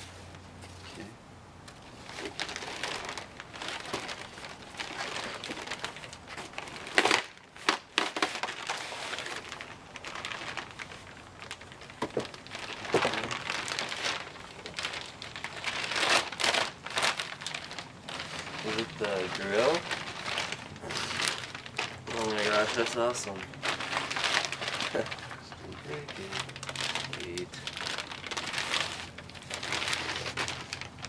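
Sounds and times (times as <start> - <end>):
wrapping paper crinkling: 1.8 - 31.0
paper ripping: 12.1 - 31.0.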